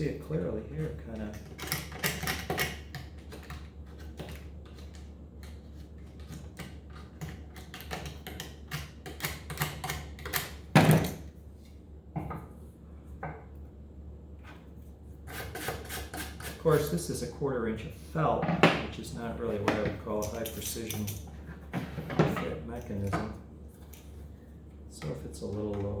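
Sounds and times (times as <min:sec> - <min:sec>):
blade scraping glue off wood: 0:15.3 - 0:16.7.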